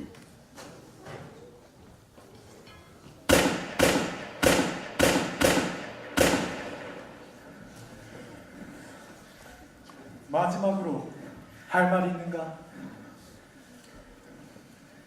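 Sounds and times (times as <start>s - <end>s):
sharp bangs with echo: 3.3s - 7.4s.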